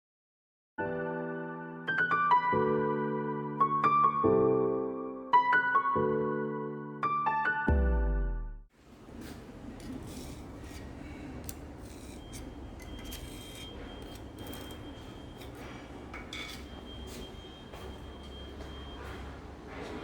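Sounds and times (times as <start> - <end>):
metallic scraping and clicking: 9.8 - 16.7.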